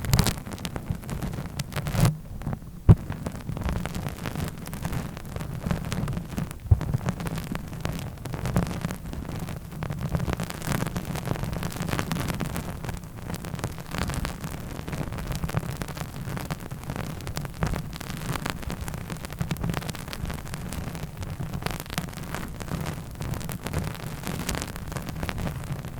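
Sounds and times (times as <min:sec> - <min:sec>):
scratchy clicks and taps on microphone: 0:00.0 - 0:00.8, 0:01.7 - 0:03.8, 0:06.0 - 0:07.4.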